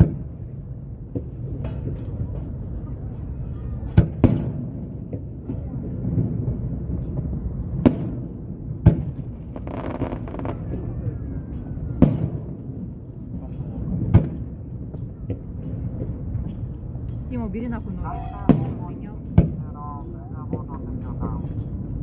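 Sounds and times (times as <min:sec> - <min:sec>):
firework shells booming: 0:00.0 - 0:00.4, 0:03.9 - 0:16.7, 0:17.6 - 0:21.4.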